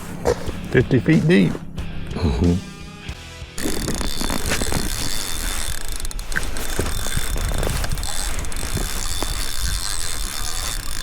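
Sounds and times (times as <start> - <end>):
fishing reel clicking and ratcheting: 3.6 - 11.0.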